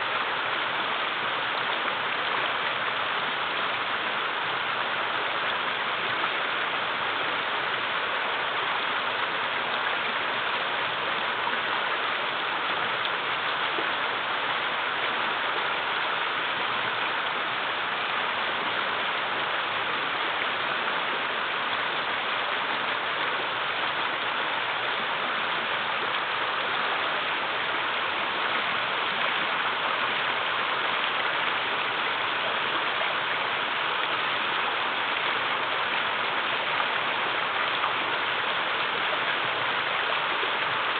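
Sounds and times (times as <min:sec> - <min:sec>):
river water rushing over rocks: 0:00.0 - 0:40.9.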